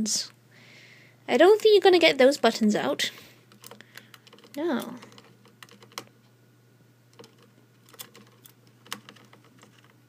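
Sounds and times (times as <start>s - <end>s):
bird beak tapping calculator buttons: 3.5s - 6.1s, 7.1s - 10.0s.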